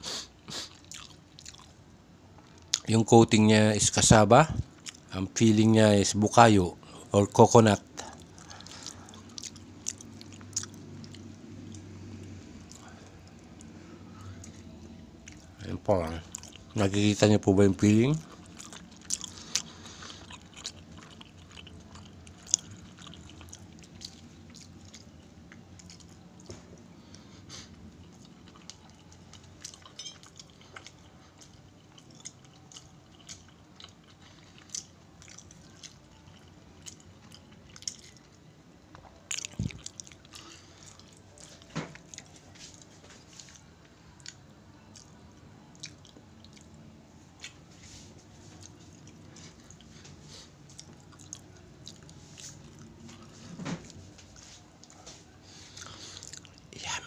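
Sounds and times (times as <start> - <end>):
person chewing cake: 0.0 - 2.9, 4.5 - 5.1, 7.8 - 17.0, 17.8 - 57.0.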